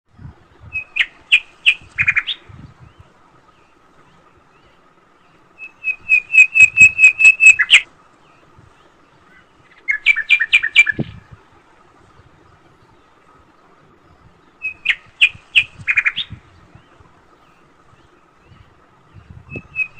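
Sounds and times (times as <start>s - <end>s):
small bird chirping: 5.6s - 7.8s, 19.5s - 19.9s.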